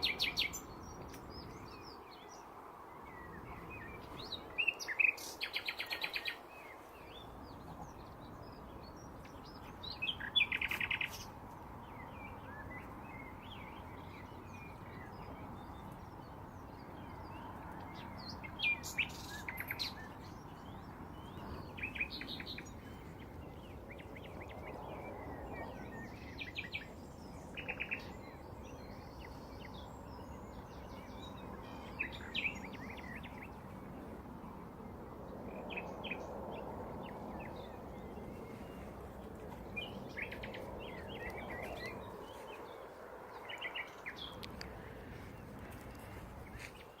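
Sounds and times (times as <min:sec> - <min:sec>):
nightingales singing: 0:00.0 - 0:17.2, 0:18.0 - 0:34.4.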